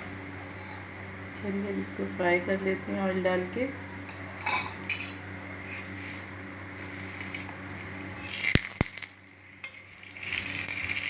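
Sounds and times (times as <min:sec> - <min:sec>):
oil sizzling on hot griddle: 0:06.8 - 0:11.0.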